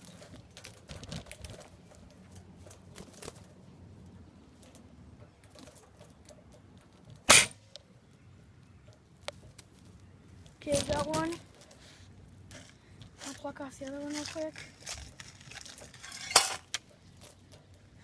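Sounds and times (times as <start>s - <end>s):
faint clicks and rustles: 0.0s - 18.0s
gunshot: 7.3s - 7.6s.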